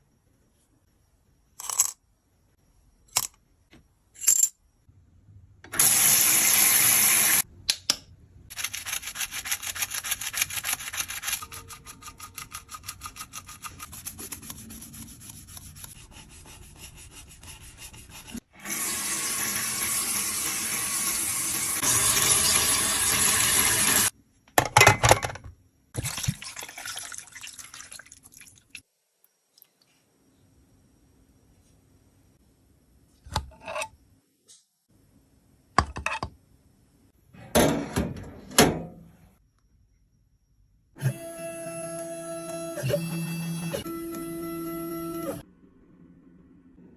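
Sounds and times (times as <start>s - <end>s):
tool scraping powder: 8.8s - 18.5s.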